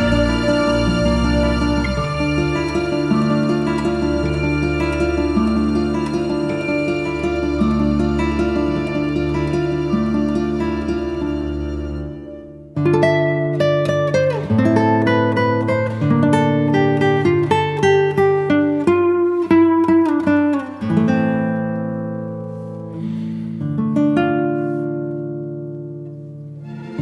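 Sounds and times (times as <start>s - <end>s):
held bass notes: 0.0s - 12.6s
guitar chords ringing out: 0.0s - 23.4s
acoustic guitar picking melody: 0.0s - 27.0s.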